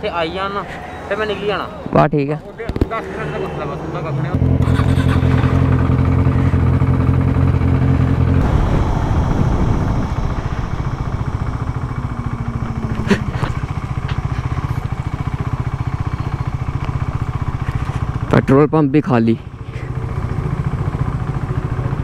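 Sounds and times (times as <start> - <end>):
motorcycle engine idling: 4.0 - 18.7, 19.3 - 22.0.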